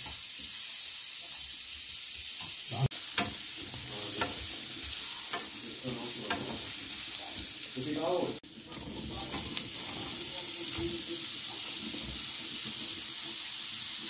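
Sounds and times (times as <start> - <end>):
food sizzling in oil: 0.0 - 14.0
spatula scraping a pan: 3.0 - 7.4, 8.6 - 14.0.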